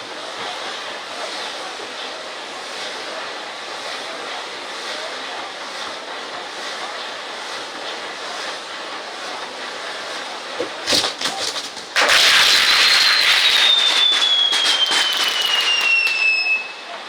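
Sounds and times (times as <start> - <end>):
fireworks hissing spray of sparks: 0.0 - 17.0
sharp crack: 10.8 - 16.3
rushing hiss with falling whistle: 12.0 - 17.0.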